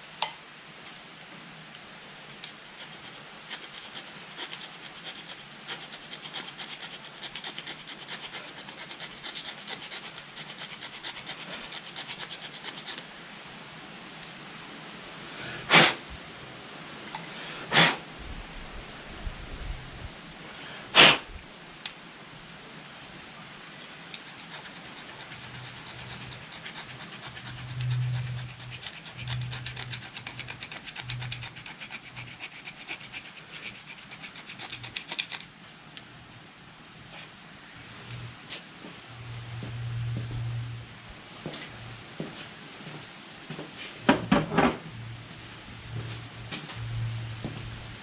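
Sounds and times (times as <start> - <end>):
puffs of blowing: 15.3 - 16.2, 17.2 - 18.1, 20.4 - 21.4.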